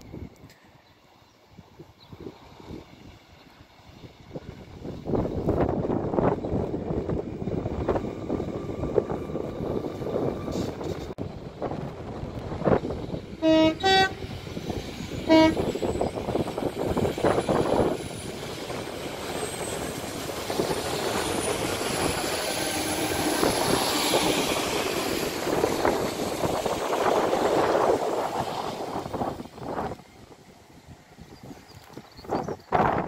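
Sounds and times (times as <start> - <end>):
train rumbling past on rails: 0.0 - 33.0
two-tone train horn blasts: 13.4 - 14.3, 15.2 - 15.7.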